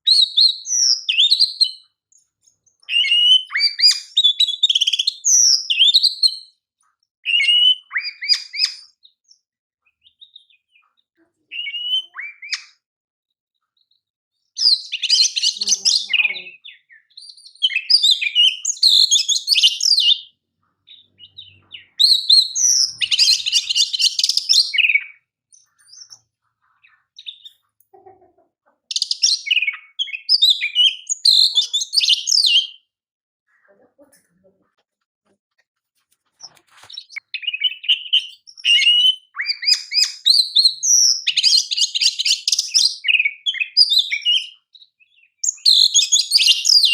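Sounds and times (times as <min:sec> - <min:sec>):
bird singing whistles and trills: 0:00.0 - 0:02.2, 0:02.8 - 0:06.5, 0:07.2 - 0:09.4, 0:11.5 - 0:12.8, 0:14.6 - 0:26.3, 0:28.9 - 0:32.9, 0:36.9 - 0:46.9.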